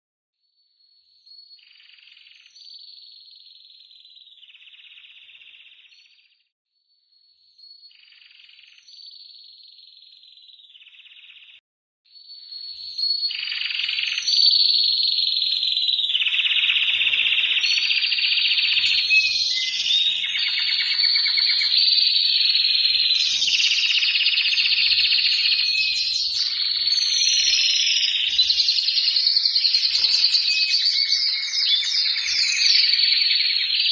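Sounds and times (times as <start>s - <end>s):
canary singing: 12.4s - 33.9s.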